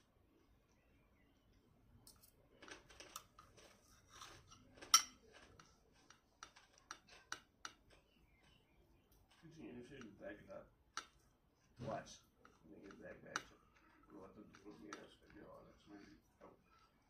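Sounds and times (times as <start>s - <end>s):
cutlery clicking on plate: 4.4s - 8.0s.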